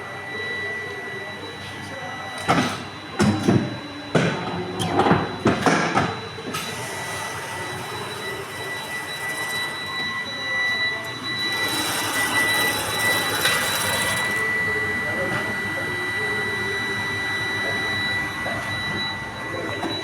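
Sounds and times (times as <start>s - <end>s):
electric motor whining: 6.6s - 20.0s.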